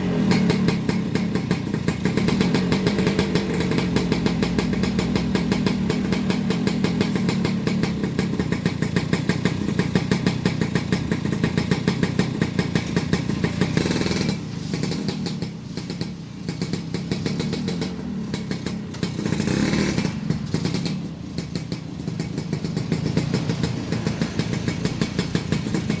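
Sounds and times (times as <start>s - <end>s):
two-stroke motorcycle engine idling: 0.0s - 26.0s.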